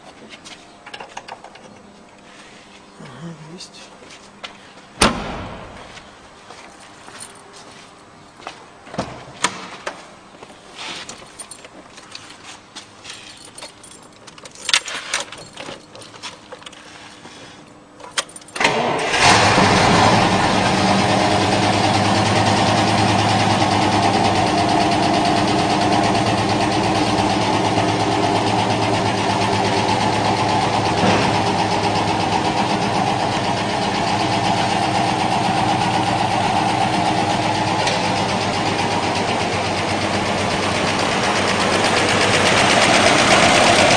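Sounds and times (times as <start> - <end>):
car engine starting and idling: 18.1 - 43.9.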